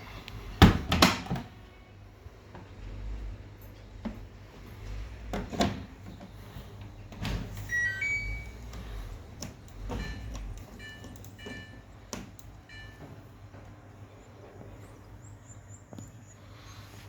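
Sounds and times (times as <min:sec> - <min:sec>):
washing machine knocks and clicks: 0:00.6 - 0:01.6
electronic beeps: 0:07.7 - 0:08.7, 0:09.9 - 0:11.9.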